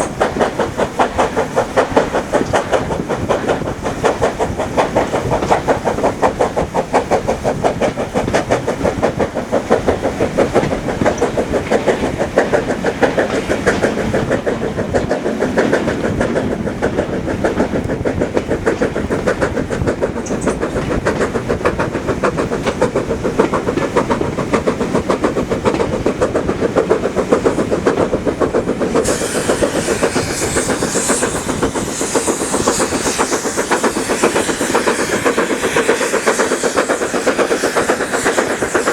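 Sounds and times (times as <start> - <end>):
hiss: 0.0 - 38.9
train running rhythmically: 0.0 - 38.9.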